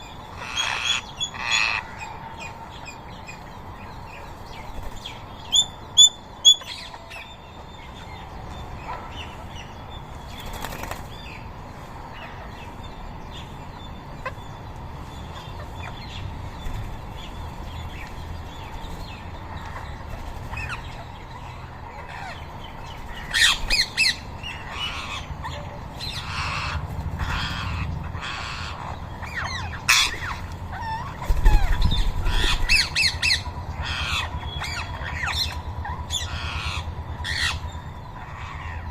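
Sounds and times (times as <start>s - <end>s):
parakeets calling: 0.0s - 38.9s
wingbeats: 8.6s - 14.4s, 15.3s - 38.9s.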